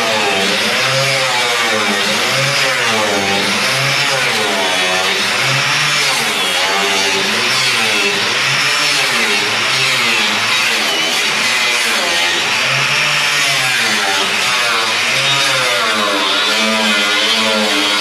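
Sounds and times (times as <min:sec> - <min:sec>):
power cutting tool cutting metal: 0:00.0 - 0:18.0.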